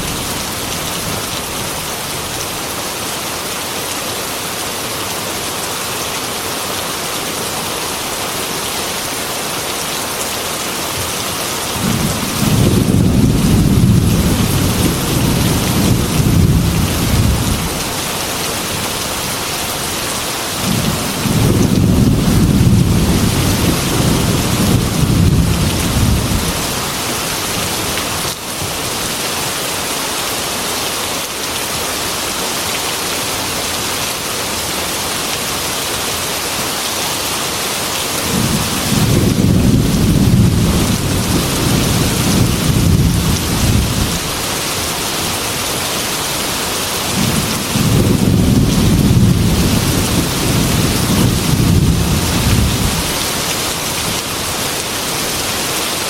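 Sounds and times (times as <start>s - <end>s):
heavy rain against glass window: 11.6s - 29.4s, 38.1s - 56.0s
rolling thunder: 11.8s - 17.8s, 20.6s - 26.8s, 38.3s - 44.4s, 47.1s - 53.1s.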